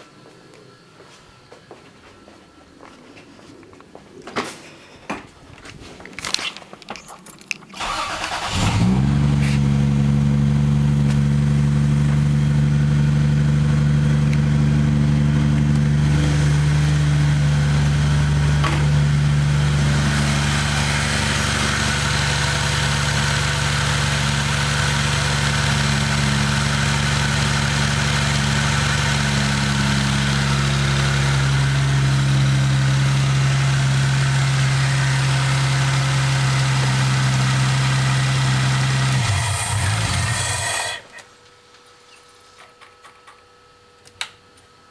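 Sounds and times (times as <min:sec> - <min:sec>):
car engine cranking: 0:07.3 - 0:41.2
car engine idling: 0:07.8 - 0:41.1.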